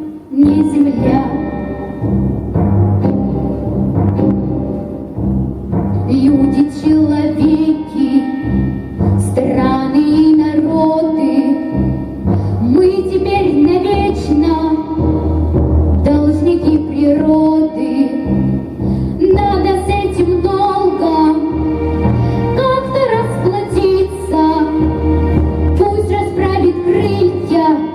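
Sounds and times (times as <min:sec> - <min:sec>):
girl singing: 0:00.0 - 0:01.9, 0:06.1 - 0:08.5, 0:09.2 - 0:11.8, 0:12.6 - 0:15.1, 0:16.0 - 0:18.4, 0:19.2 - 0:21.7, 0:22.5 - 0:25.1, 0:25.7 - 0:27.9
orchestral backing track: 0:00.0 - 0:27.9.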